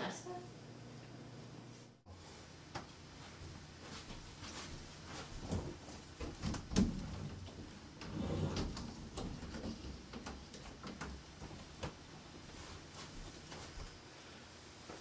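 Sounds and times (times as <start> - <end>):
soft rustling shuffle: 1.7 - 6.4, 10.0 - 15.0
light household knocks and clicks: 5.5 - 12.1.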